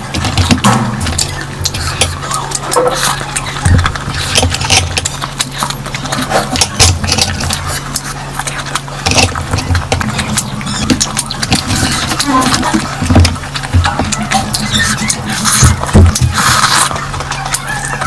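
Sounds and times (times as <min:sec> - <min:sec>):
steady low hum: 0:00.0 - 0:18.0
wet chewing and lip-smacking: 0:00.0 - 0:18.0.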